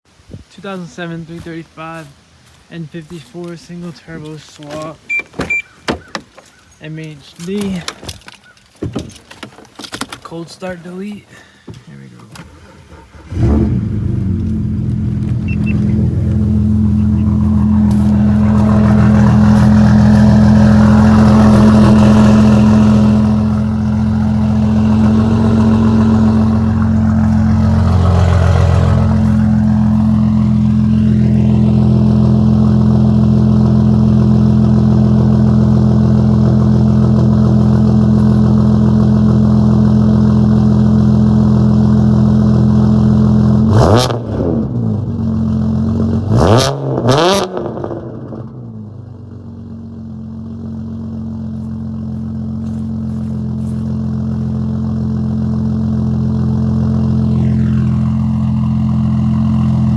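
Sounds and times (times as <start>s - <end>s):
car engine idling and revving: 11.9s - 59.9s.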